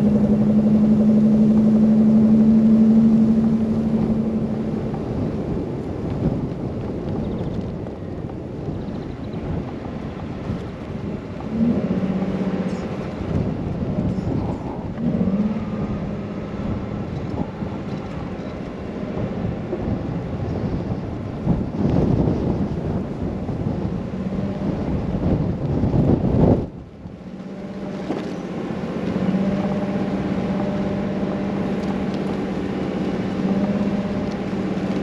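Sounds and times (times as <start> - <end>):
car driving on snowy road: 0.0 - 35.0
low hum: 0.0 - 35.0
wind buffeting the microphone: 0.0 - 35.0.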